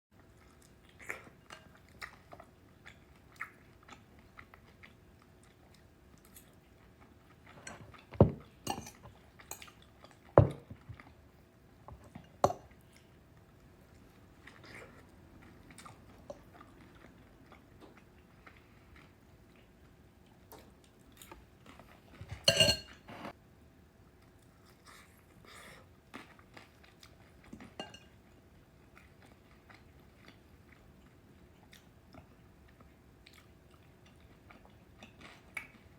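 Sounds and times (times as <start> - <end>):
person chewing: 0.3 - 11.2, 24.2 - 28.1
spoon clinking against bowl: 22.5 - 23.0.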